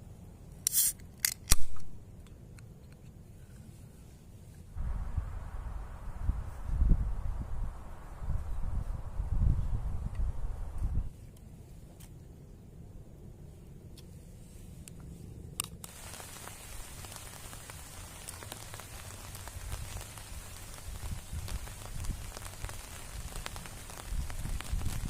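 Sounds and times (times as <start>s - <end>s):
low rumble: 4.8s - 11.1s
rain hissing with drop taps: 15.8s - 25.0s.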